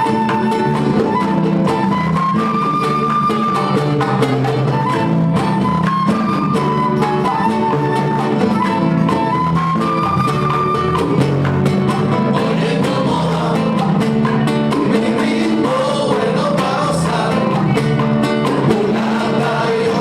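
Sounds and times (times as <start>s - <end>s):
cuban band dance music: 0.0s - 20.0s
person singing: 12.3s - 17.9s, 18.5s - 20.0s.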